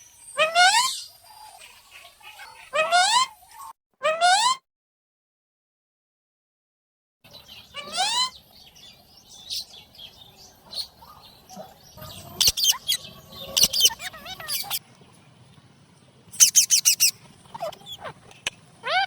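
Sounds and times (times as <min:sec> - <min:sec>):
parakeets calling and squawking: 0:00.0 - 0:03.7, 0:07.3 - 0:14.8, 0:16.4 - 0:19.0.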